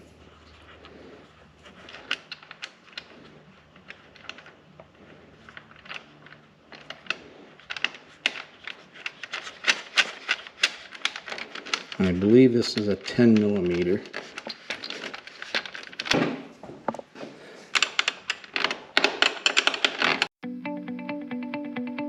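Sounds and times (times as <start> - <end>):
metal hardware clicks: 1.8 - 16.2.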